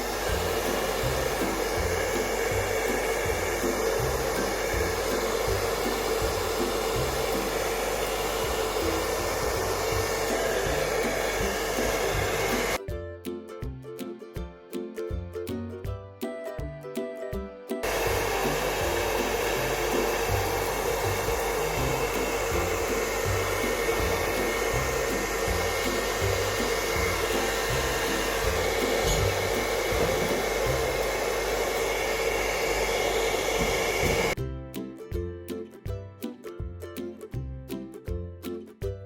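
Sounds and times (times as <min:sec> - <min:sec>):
hair dryer running: 0:00.0 - 0:12.8, 0:17.8 - 0:34.4
background music with steady beat: 0:00.0 - 0:39.0.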